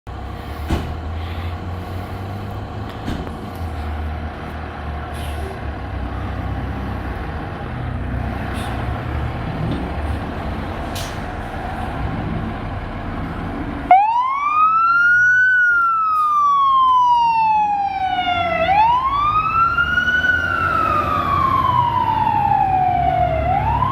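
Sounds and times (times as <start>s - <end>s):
diesel engine rumbling: 0.1s - 23.9s
air brake hisses: 8.5s - 8.9s.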